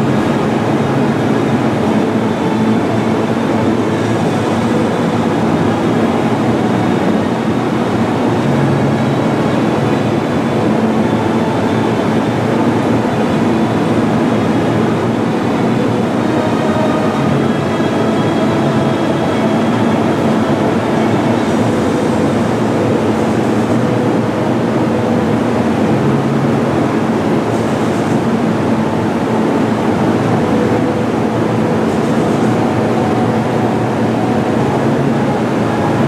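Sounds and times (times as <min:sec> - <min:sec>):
train rumbling on rails: 0:00.0 - 0:36.0.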